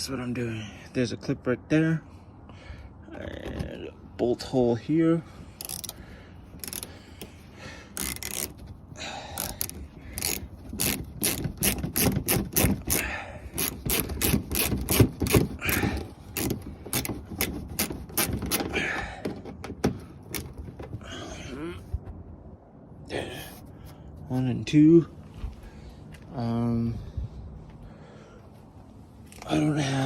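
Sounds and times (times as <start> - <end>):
ratchet wrench clicking: 5.6 - 6.0, 6.6 - 6.9, 7.9 - 8.6, 9.4 - 18.4.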